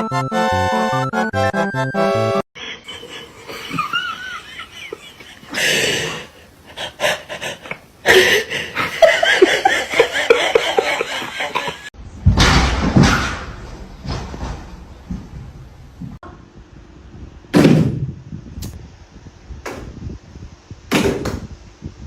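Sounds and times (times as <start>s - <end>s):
person laughing: 2.6s - 11.9s
loud crash: 12.2s - 14.8s.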